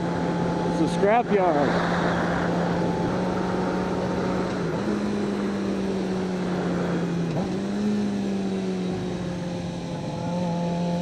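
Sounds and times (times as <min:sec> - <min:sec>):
motorcycle engine cruising: 0:00.0 - 0:11.0
wind rushing on helmet: 0:00.1 - 0:07.4.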